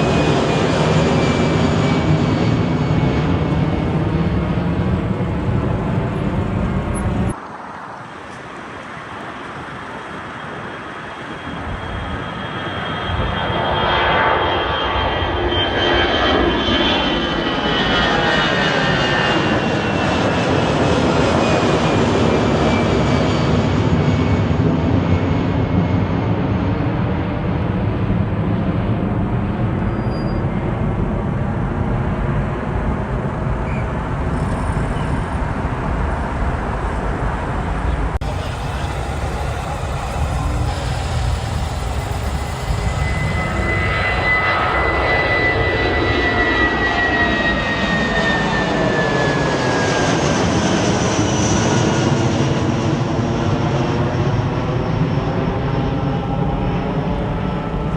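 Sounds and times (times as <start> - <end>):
jet airliner passing: 0.0 - 57.9.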